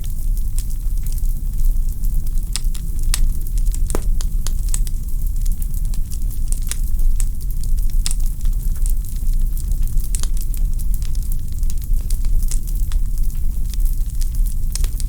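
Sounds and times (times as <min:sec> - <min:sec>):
log fire crackling: 0:02.4 - 0:06.8.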